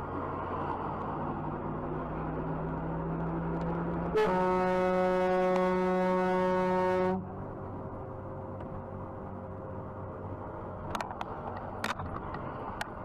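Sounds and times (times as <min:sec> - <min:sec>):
road noise: 0:00.0 - 0:13.0
car horn: 0:04.1 - 0:07.2.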